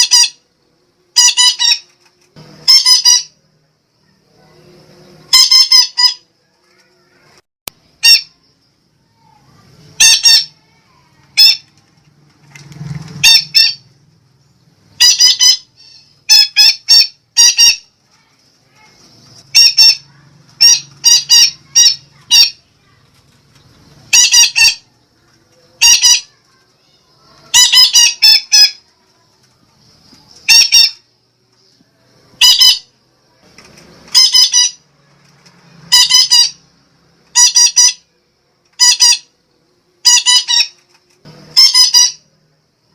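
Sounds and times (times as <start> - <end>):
parakeet squawking: 0.0 - 0.4, 1.1 - 1.9, 2.6 - 3.4, 5.3 - 6.3, 8.0 - 8.4, 9.9 - 11.7, 13.2 - 13.9, 14.9 - 18.0, 18.7 - 22.9, 24.1 - 24.9, 25.7 - 26.4, 27.1 - 28.8, 30.4 - 31.0, 32.4 - 32.9, 34.1 - 34.8, 35.9 - 36.7, 37.3 - 38.1, 38.8 - 39.3, 40.0 - 40.8, 41.5 - 42.3.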